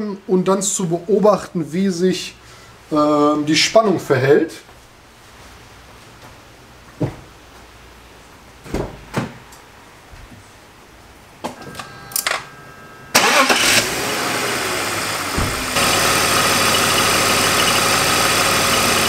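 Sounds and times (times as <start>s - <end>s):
thump: 8.7s - 9.4s, 15.3s - 15.7s
car engine starting and idling: 13.1s - 19.0s.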